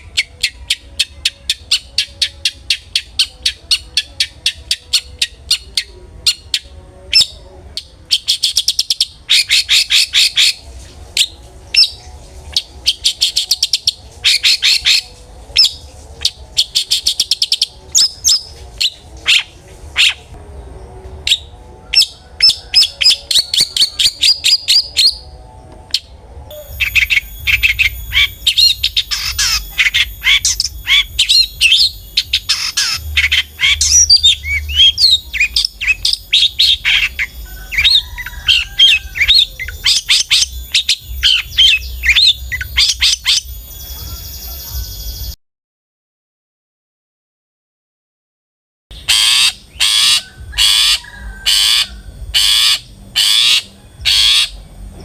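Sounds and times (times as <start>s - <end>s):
bird chirping and trilling: 0.0s - 10.6s, 11.2s - 45.4s, 48.9s - 54.6s
thin very high steady tone: 21.6s - 45.4s.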